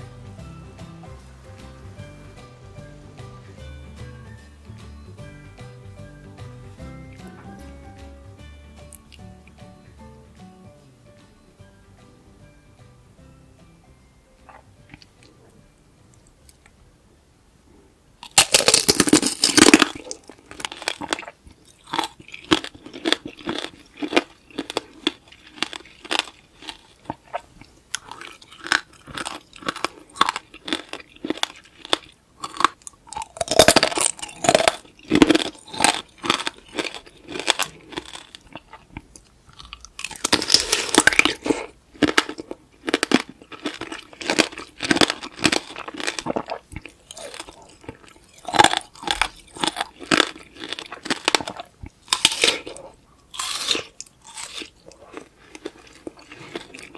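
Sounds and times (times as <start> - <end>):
crunching candied sugar: 18.2 - 56.9.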